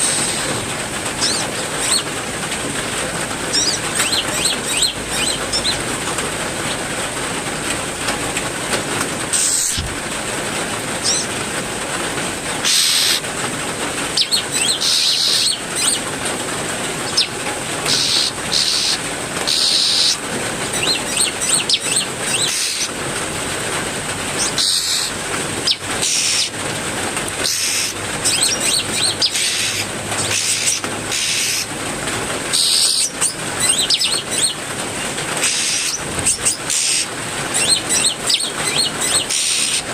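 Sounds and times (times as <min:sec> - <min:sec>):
songbirds chirping and calling: 0:00.0 - 0:02.2, 0:03.4 - 0:07.2, 0:11.0 - 0:11.4, 0:12.5 - 0:13.3, 0:14.1 - 0:16.1, 0:16.9 - 0:23.0, 0:24.3 - 0:26.6, 0:27.3 - 0:31.7, 0:32.5 - 0:39.9
heavy rain: 0:00.0 - 0:39.9.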